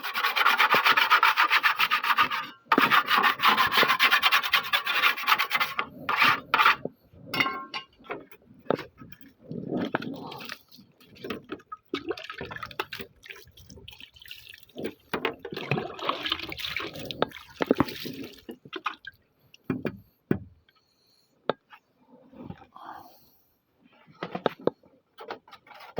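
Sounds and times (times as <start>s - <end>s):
water splashing and pouring: 9.1s - 19.2s.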